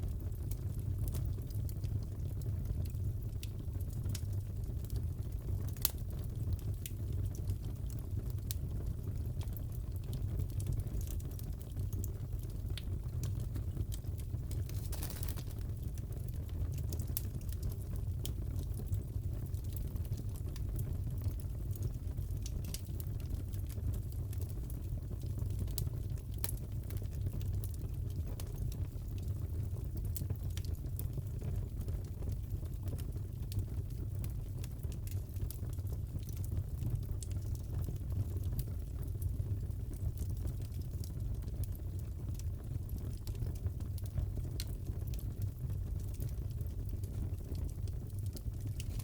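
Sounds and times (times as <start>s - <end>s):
fire pops and crackles: 0.0s - 49.0s
burning wood rumble: 13.5s - 17.3s, 48.0s - 49.0s.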